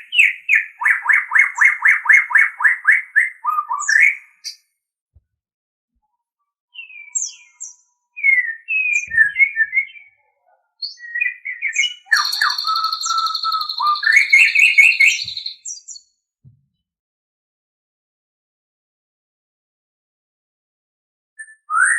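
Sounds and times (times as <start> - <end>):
bird singing whistles and chatter: 0.0 - 4.6, 6.7 - 16.0, 21.4 - 21.9.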